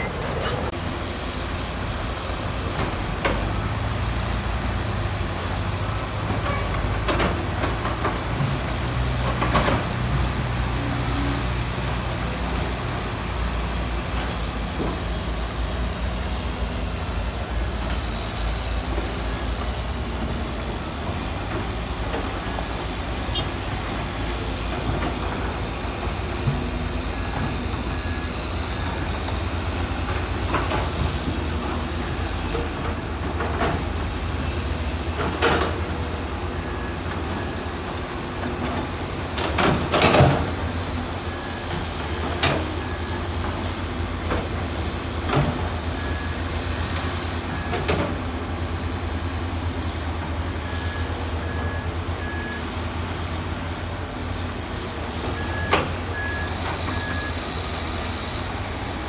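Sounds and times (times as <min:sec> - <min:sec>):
sharp metallic clanks: 0:00.0 - 0:00.8
heavy diesel machine engine: 0:00.0 - 0:59.0.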